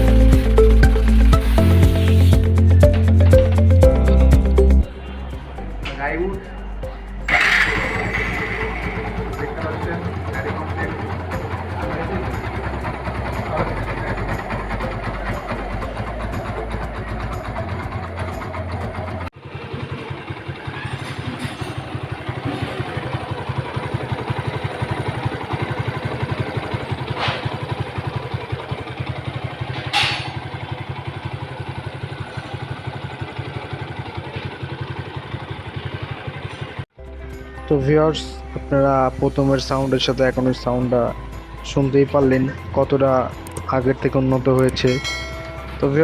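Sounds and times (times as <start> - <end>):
motorcycle engine idling: 4.4 - 36.8.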